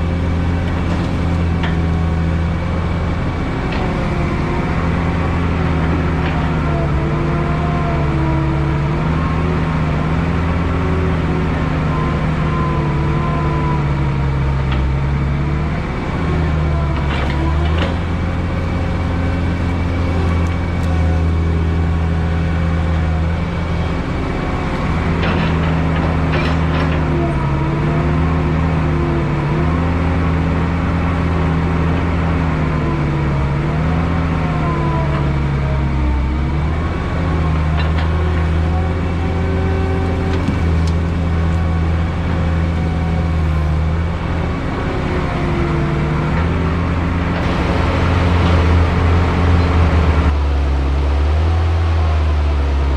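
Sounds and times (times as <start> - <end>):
diesel engine running: 0.0 - 52.9
short knocks: 39.5 - 41.8.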